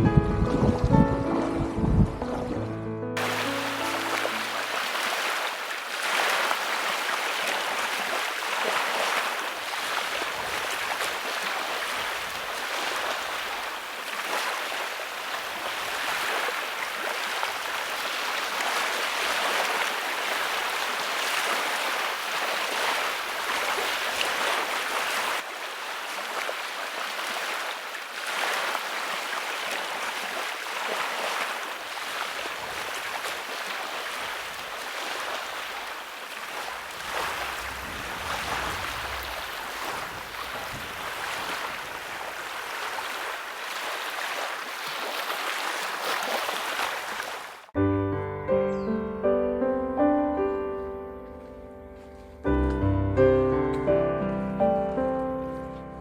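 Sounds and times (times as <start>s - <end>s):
rushing water: 0.6s - 47.8s.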